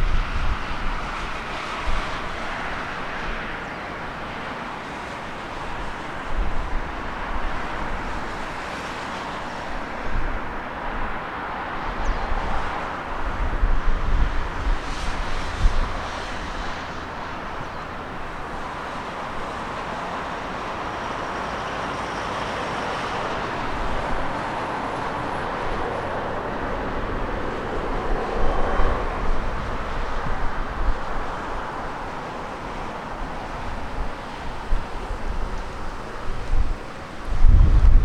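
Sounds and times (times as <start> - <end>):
wind buffeting microphone: 0.0 - 4.4, 9.3 - 21.6, 22.8 - 38.0
jet engines roaring: 9.3 - 38.0.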